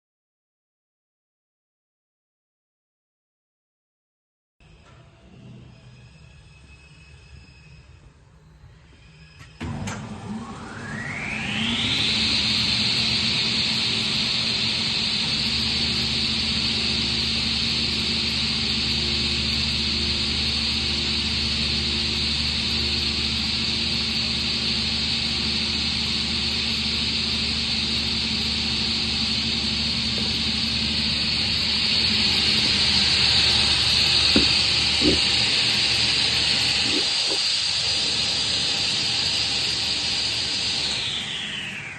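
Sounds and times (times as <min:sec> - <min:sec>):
table saw whining: 0:04.6 - 0:41.9
short knocks: 0:34.3 - 0:35.3.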